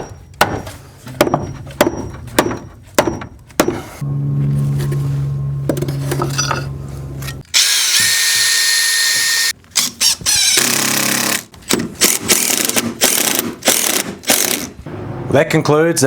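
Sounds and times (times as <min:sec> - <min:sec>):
power tool cutting with whine: 0:07.6 - 0:09.5.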